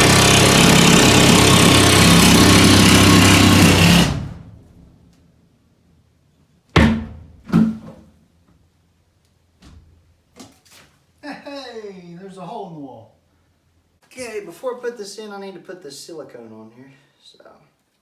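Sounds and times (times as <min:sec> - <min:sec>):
power saw cutting: 0:00.0 - 0:04.5
sharp knocks: 0:06.8 - 0:08.0.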